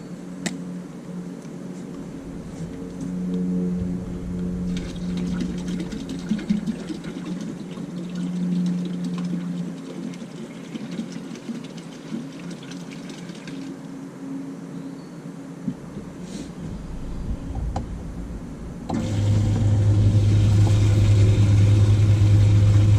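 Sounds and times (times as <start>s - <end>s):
electric pump hum: 0.0s - 14.6s, 15.4s - 22.9s
water splashing: 3.8s - 13.8s, 16.0s - 22.9s.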